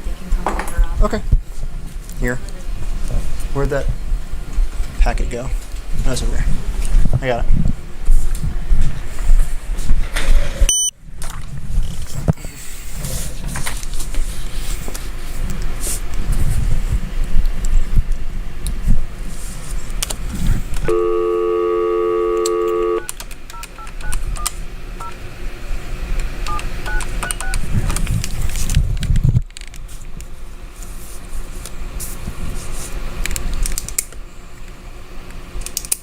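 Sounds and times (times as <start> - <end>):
touch-tone keypad beeps: 10.7 - 10.9, 20.9 - 24.2, 26.5 - 27.6
telephone dial tone: 20.9 - 24.2, 26.5 - 27.6.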